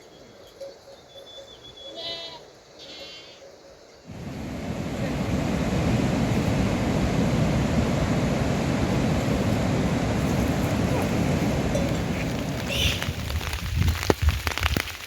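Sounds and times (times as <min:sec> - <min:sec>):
heavy rain: 0:04.1 - 0:15.0
animal calls: 0:12.2 - 0:13.2.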